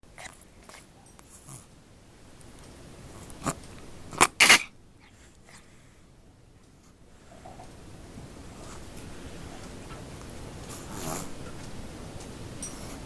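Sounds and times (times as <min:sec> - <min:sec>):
dog harsh breath sounds: 0:04.2 - 0:05.8.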